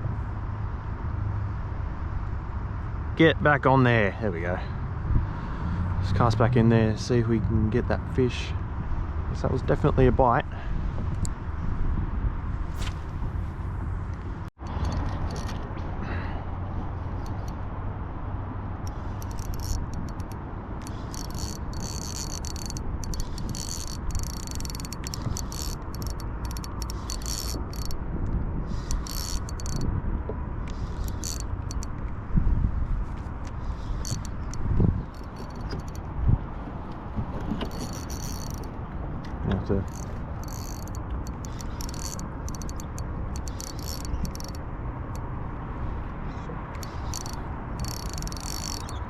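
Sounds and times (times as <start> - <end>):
wind on microphone: 8.6 - 17.8, 18.8 - 49.0
fishing reel rattling: 14.6 - 15.6, 17.2 - 17.6, 18.8 - 28.0, 28.7 - 29.9, 30.7 - 31.9, 33.6 - 36.1, 37.6 - 38.7, 39.7 - 45.3, 46.3 - 49.0.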